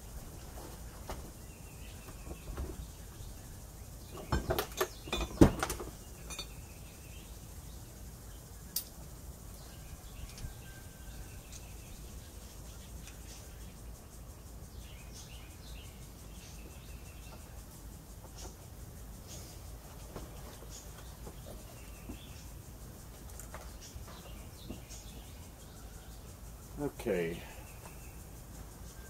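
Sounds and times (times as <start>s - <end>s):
faint bird chirps: 1.3s - 29.0s
metal clanks and knocks: 4.1s - 6.6s.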